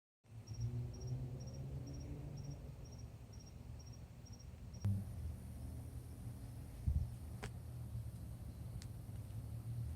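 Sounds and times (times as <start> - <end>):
cricket chirping: 0.3 - 4.9.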